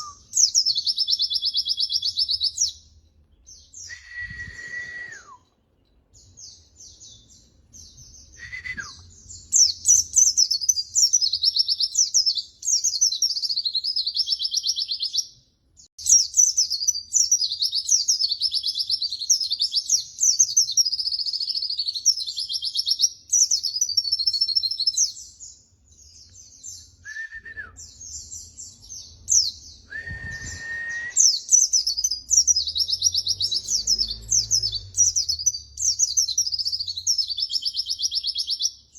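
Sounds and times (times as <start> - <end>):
lower whistled bird notes: 0.0 - 2.8, 3.5 - 5.6, 6.4 - 15.2, 26.6 - 38.8
bird high twittering song: 0.0 - 38.9.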